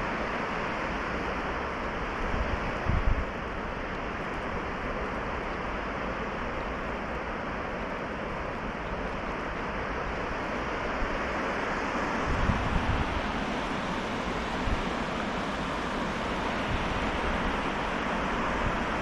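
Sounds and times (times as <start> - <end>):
river water rushing: 0.0 - 19.0
wind buffeting microphone: 2.2 - 4.5, 12.0 - 19.0.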